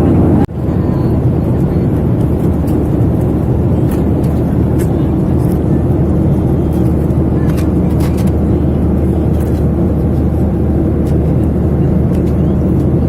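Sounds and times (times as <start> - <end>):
jet engine cabin rumble: 0.0 - 13.0.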